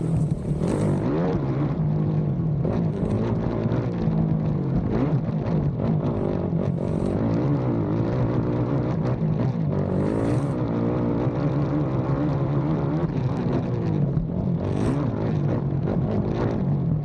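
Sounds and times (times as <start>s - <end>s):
quad engine revving: 0.0s - 5.2s, 5.9s - 9.0s, 9.7s - 12.2s.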